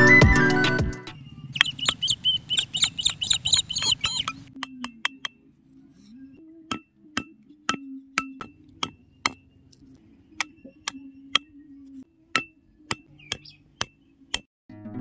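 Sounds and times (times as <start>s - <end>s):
hammer tapping metal rod: 6.7s - 14.5s.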